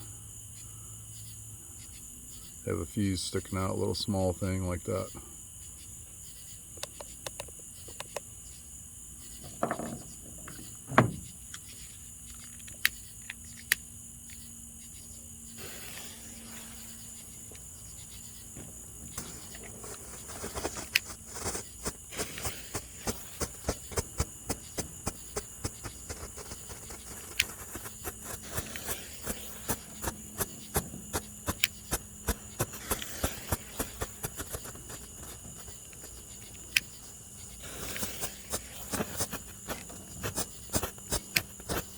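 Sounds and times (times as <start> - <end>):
crickets chirping: 0.0 - 41.9
fireworks popping: 15.5 - 41.9.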